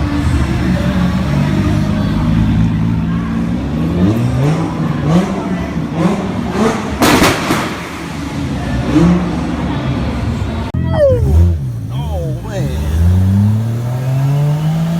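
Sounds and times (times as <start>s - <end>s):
car engine revving: 10.8s - 14.9s.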